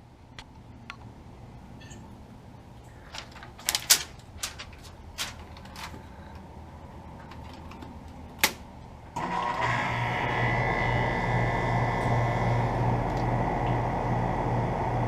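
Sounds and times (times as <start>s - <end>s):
air conditioner compressor hum: 0.0s - 15.0s.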